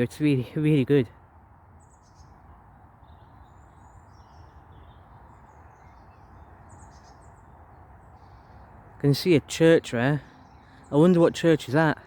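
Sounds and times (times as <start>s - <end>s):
distant motorway traffic hum: 0.0s - 12.0s
small birds chirping: 0.0s - 12.0s.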